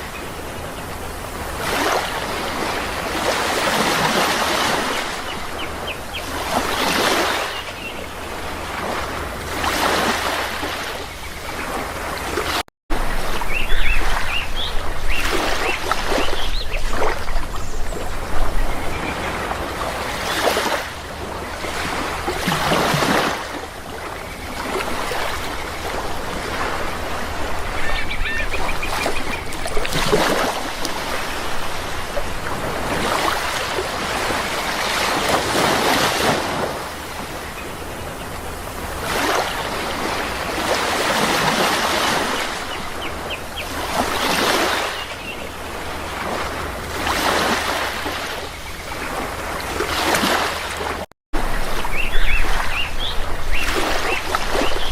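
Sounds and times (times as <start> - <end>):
sea waves washing in: 0.0 - 54.9
bird calls: 13.1 - 23.3, 24.0 - 30.4, 51.5 - 54.9.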